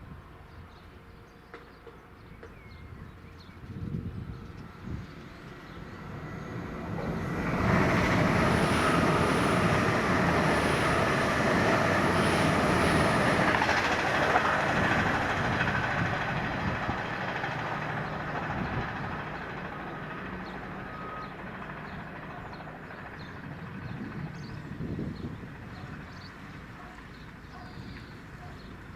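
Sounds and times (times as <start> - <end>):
train passing: 0.0 - 28.9.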